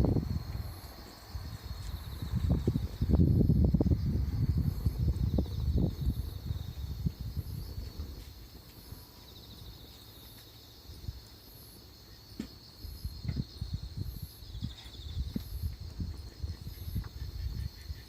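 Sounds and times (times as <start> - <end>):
fire gusty rumbling: 0.0 - 9.2
insects trilling: 0.0 - 18.0.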